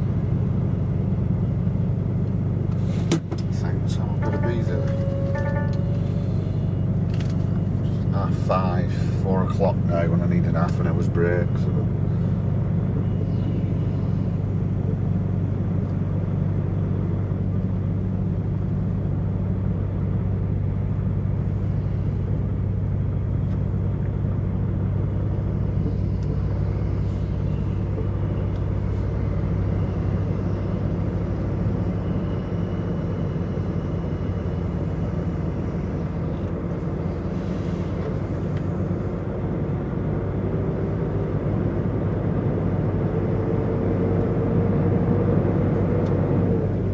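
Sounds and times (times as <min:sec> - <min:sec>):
truck diesel engine droning: 0:00.0 - 0:46.9
faint rising whine: 0:20.3 - 0:46.9.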